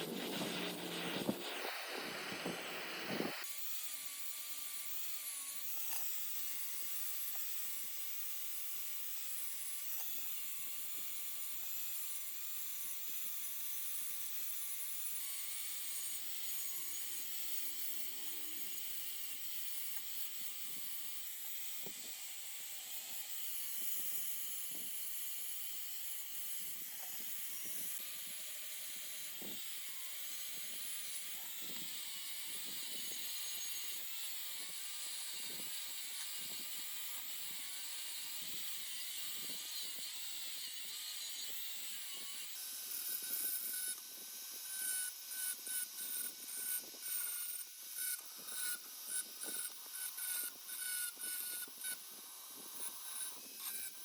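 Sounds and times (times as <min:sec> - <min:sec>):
high-speed power tool whining: 0:00.0 - 0:54.0.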